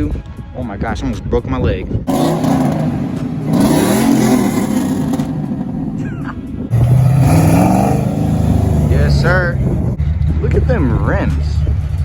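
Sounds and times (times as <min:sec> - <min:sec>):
wind buffeting microphone: 0:01.3 - 0:10.4
car engine accelerating: 0:02.1 - 0:10.1.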